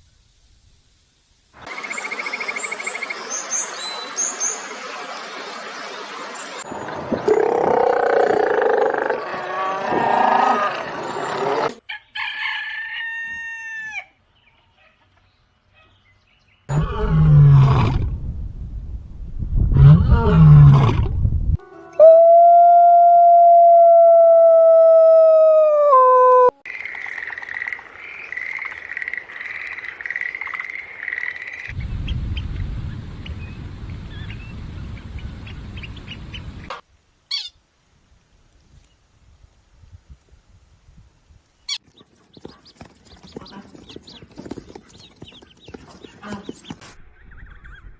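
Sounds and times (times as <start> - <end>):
deep animal roar: 7.2 - 11.8, 16.7 - 18.2, 19.7 - 21.2
rooster crowing: 11.8 - 14.2
low wind-like rumble: 17.0 - 21.6, 31.7 - 36.7.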